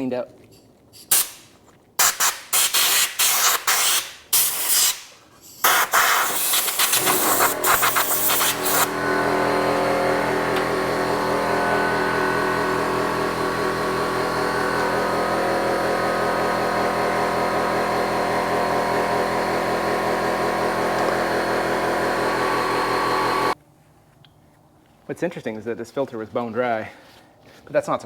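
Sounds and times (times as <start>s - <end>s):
air hissing: 2.0s - 9.4s
electric motor running: 6.4s - 23.6s.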